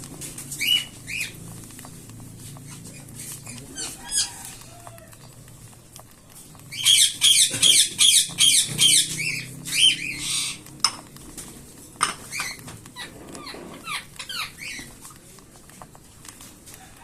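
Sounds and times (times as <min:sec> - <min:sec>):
cockatiels chirping: 0:00.5 - 0:01.6, 0:02.5 - 0:05.4, 0:06.3 - 0:15.2.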